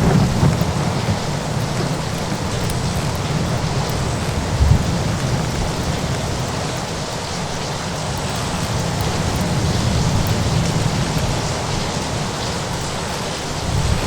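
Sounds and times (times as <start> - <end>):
thunder rumbling: 0.0 - 6.9
steady rain: 0.0 - 14.0.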